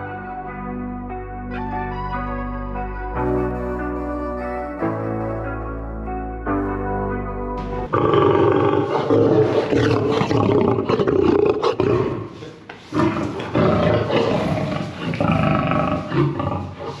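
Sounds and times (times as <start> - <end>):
big cat roaring and growling: 7.9 - 17.0.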